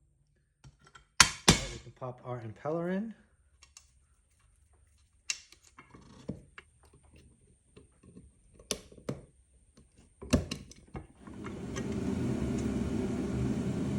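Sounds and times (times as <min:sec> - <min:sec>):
steady mechanical noise: 0:11.2 - 0:13.9.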